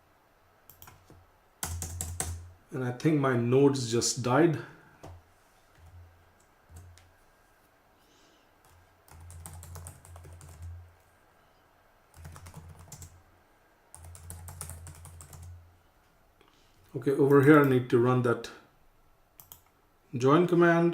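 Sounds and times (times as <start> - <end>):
typing on a keyboard: 0.7 - 2.4, 8.6 - 10.8, 12.1 - 13.1, 13.9 - 15.6, 19.4 - 19.7.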